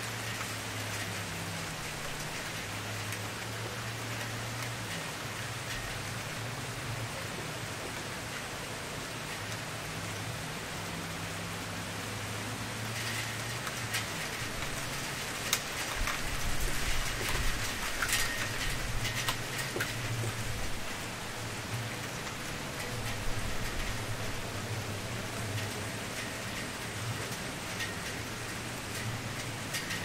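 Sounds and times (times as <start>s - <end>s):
campfire crackling and popping: 13.0s - 30.0s.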